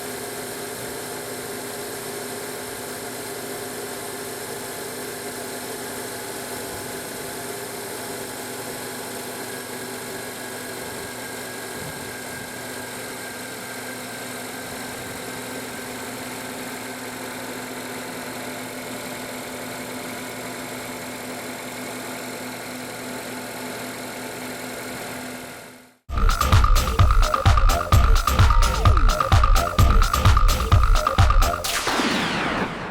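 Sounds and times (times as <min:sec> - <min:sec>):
music: 0:26.1 - 0:31.9.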